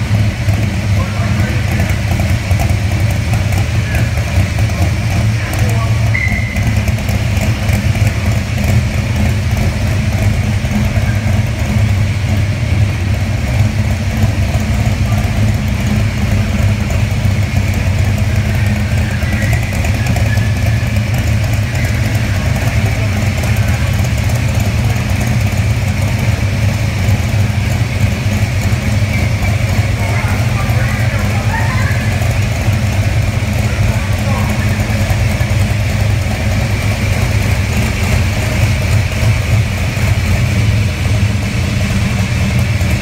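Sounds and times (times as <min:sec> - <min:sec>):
car engine idling loudly: 0:00.0 - 0:43.0.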